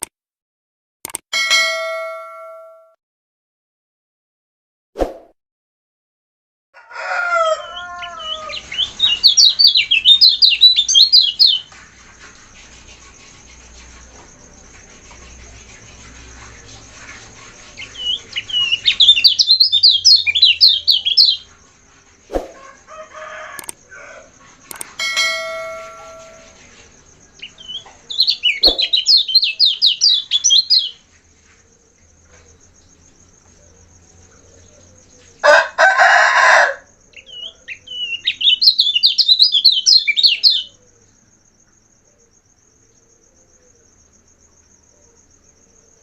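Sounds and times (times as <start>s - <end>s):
single clicks: 1.0s - 1.2s, 23.6s - 23.8s, 24.7s - 24.9s
songbird twittering warble: 7.8s - 22.7s, 24.5s - 35.4s, 37.0s - 46.0s
steady thin high tone: 25.0s - 26.6s
lower falling bird call: 27.6s - 30.0s.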